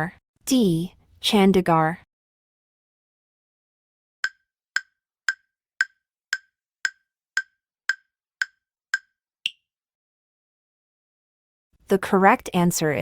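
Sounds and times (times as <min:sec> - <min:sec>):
timer ticking: 0:04.2 - 0:09.6.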